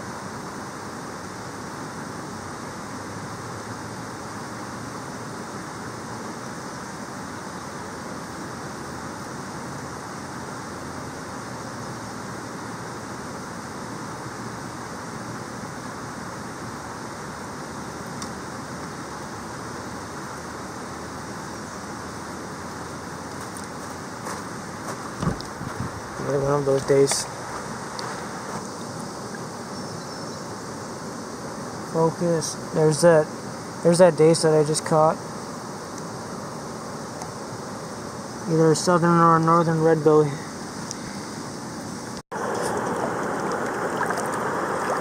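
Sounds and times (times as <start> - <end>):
waterfall rushing: 42.4 - 45.0.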